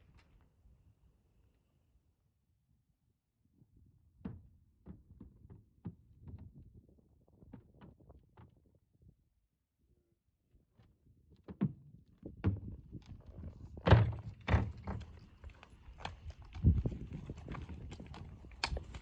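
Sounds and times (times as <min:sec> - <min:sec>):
horse hooves thudding: 0:12.5 - 0:19.0.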